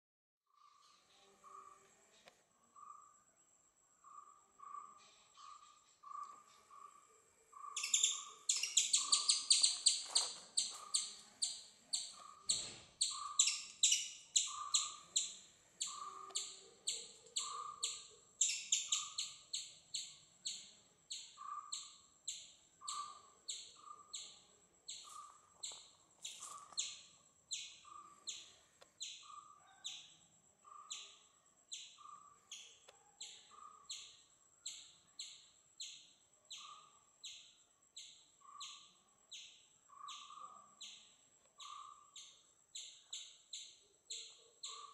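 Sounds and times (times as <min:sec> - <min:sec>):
sharp high bird chirps: 0:07.6 - 0:44.9.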